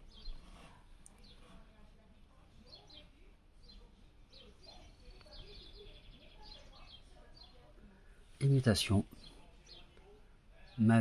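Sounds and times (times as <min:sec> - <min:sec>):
birds chirping and trilling: 0:00.0 - 0:01.6, 0:02.6 - 0:07.8, 0:10.6 - 0:11.0.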